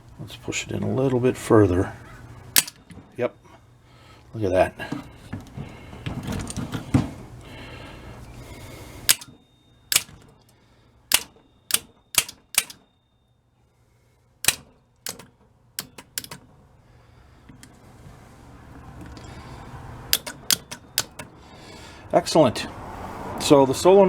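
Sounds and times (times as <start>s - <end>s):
starter solenoid clicking: 2.5s - 3.0s, 9.0s - 10.4s, 11.1s - 12.9s, 14.4s - 16.5s, 20.0s - 21.4s.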